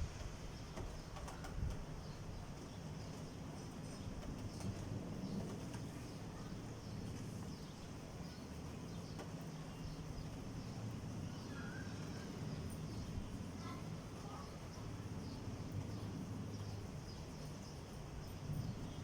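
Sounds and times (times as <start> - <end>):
faint bird chirps: 5.3 - 19.0.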